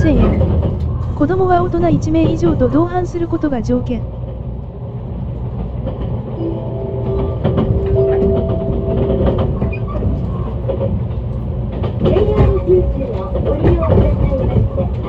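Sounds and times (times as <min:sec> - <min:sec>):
train rumble from inside carriage: 0:00.0 - 0:15.0
steady tone: 0:06.4 - 0:11.6
wheels clicking over rail joints: 0:07.4 - 0:15.0.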